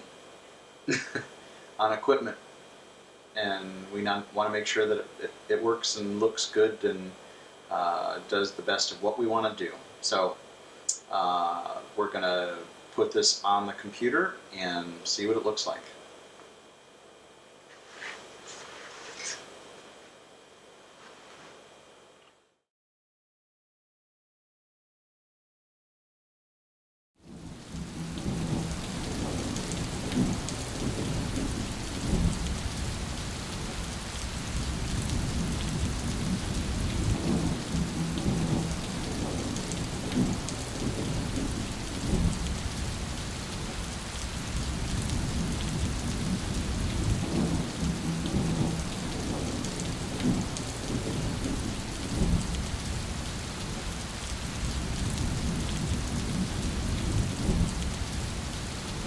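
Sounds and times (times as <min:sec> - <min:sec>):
low rumble: 0:27.4 - 0:32.9, 0:33.9 - 0:43.0, 0:44.6 - 0:53.0.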